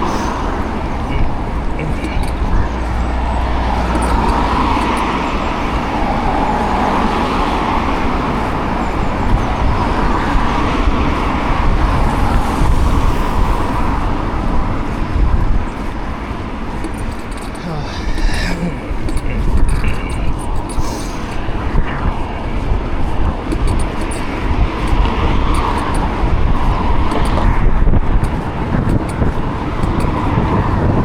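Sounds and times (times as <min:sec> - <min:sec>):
low rumble: 0:00.0 - 0:31.0
road and traffic noise: 0:00.0 - 0:31.0.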